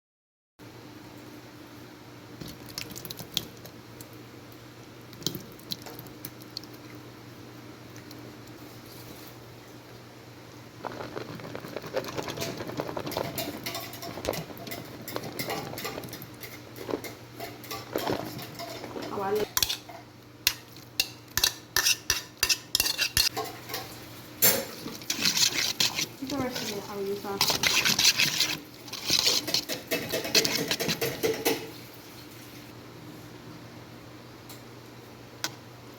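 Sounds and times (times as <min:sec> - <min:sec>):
utensils clattering on pots: 0:12.1 - 0:31.8.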